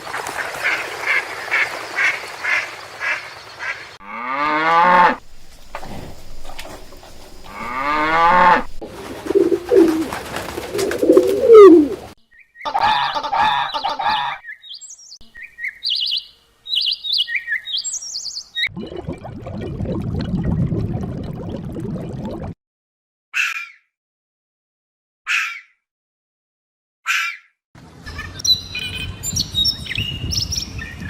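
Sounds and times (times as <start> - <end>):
low rough rumbling: 5.2 - 8.8.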